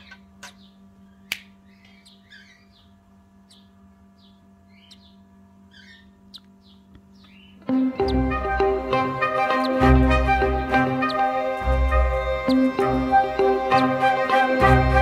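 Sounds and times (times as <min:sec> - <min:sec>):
small bird chirping: 0:00.0 - 0:14.0
steady low hum: 0:00.0 - 0:15.0
sharp click: 0:01.3 - 0:01.5.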